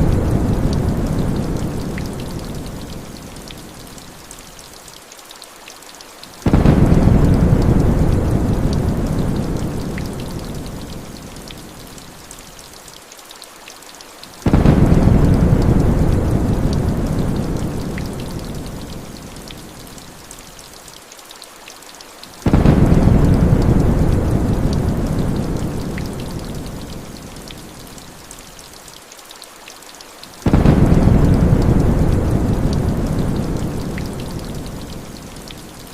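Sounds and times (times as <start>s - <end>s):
rolling thunder: 0.0s - 2.2s, 6.5s - 10.5s, 14.5s - 18.5s, 22.5s - 26.2s, 30.5s - 34.5s
rain falling: 0.0s - 35.9s.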